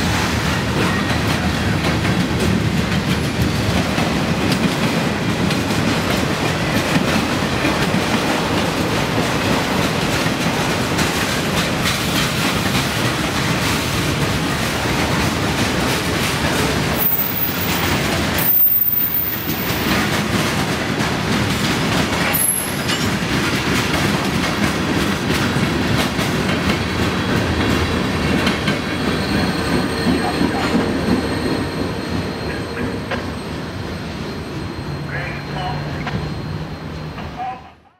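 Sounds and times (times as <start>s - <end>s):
train wheels clattering on track: 0.0s - 35.1s
high-pitched wheel squeals: 29.0s - 37.4s.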